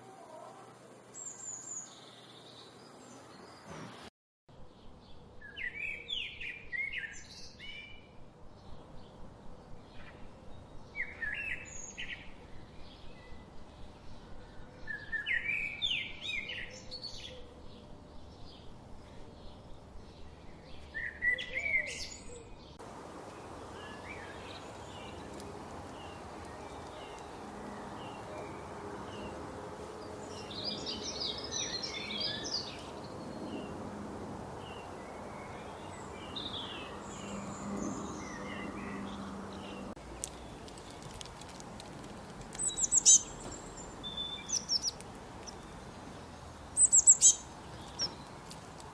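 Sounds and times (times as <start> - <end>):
songbirds singing: 4.6 - 48.9
steady hiss: 22.8 - 37.2.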